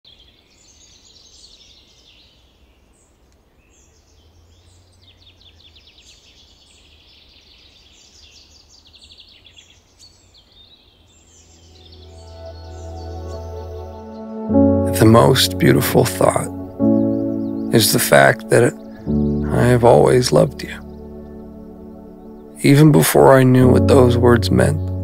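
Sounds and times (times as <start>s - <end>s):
songbirds chirping and trilling: 0.1s - 25.0s
soft music: 11.4s - 25.0s.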